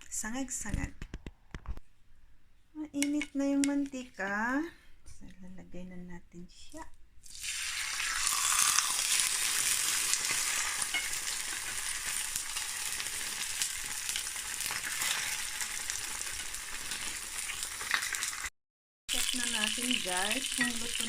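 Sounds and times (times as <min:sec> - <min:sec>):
fish frying in oil: 0:07.2 - 0:18.5, 0:19.1 - 0:21.0.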